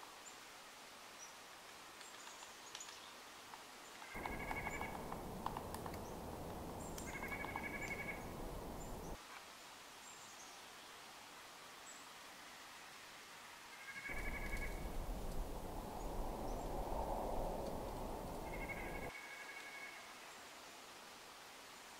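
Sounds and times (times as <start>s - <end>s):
steady background noise: 1.6s - 9.6s, 12.2s - 19.2s
bird rattling calls: 4.1s - 9.2s, 14.1s - 15.7s, 18.4s - 19.1s
thin high bird chirps: 4.1s - 9.2s.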